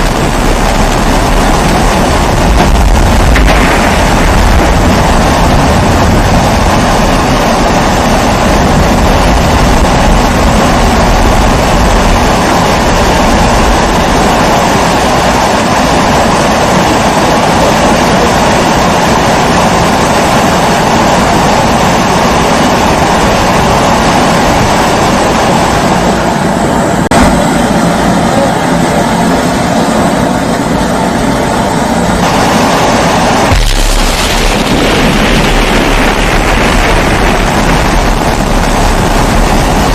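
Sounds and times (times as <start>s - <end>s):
low rumble: 0.0s - 14.9s, 32.1s - 39.9s.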